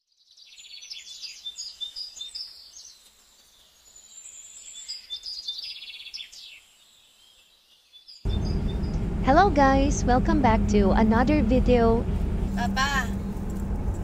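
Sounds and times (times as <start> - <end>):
birds chirping and singing: 0.3 - 9.1.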